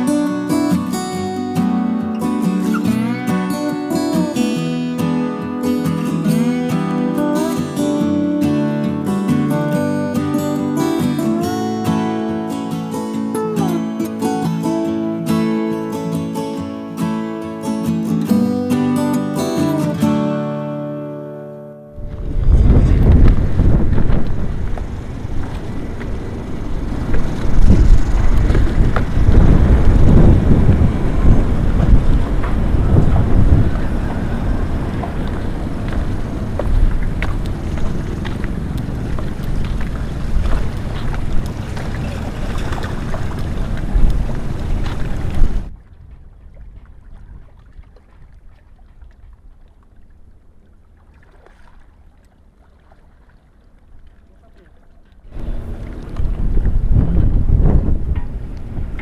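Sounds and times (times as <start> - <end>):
wind buffeting microphone: 22.0 - 50.3, 55.2 - 59.0
small water splashes: 33.6 - 57.4.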